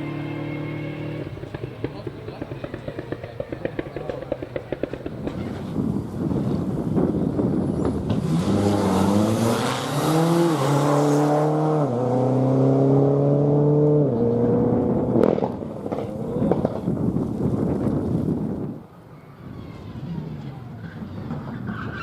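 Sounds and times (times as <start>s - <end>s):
rally car engine accelerating: 7.7s - 17.4s.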